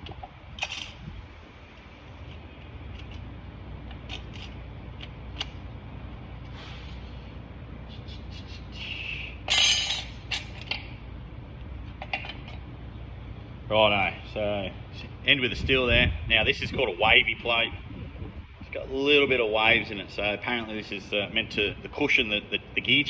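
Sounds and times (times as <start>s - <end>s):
steady low hum: 0.0s - 23.0s
metal plates clinking: 9.5s - 10.7s.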